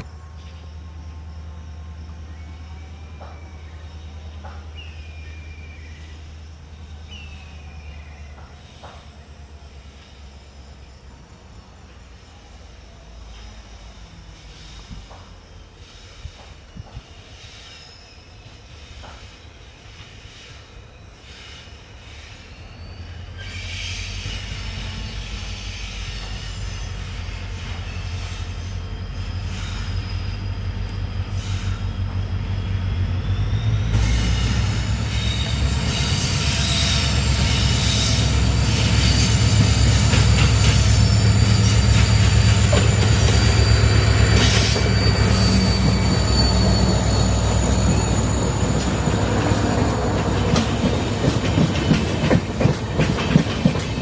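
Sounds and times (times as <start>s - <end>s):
train rumbling past: 0.0s - 54.0s
high wheel squeal: 12.8s - 52.2s
wheels clacking over rail joints: 35.5s - 46.1s, 47.6s - 54.0s.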